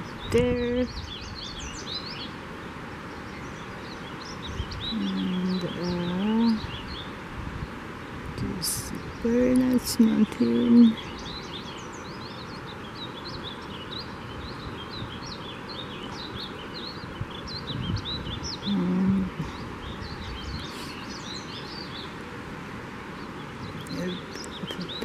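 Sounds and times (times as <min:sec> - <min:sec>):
background noise: 0:00.0 - 0:25.0
small birds chirping: 0:00.0 - 0:25.0.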